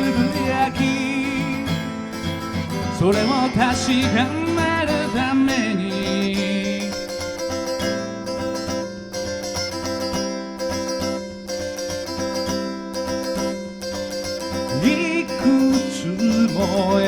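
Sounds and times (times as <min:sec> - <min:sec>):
person singing: 0:00.0 - 0:07.6, 0:14.7 - 0:17.0
acoustic guitar strumming: 0:00.0 - 0:17.0.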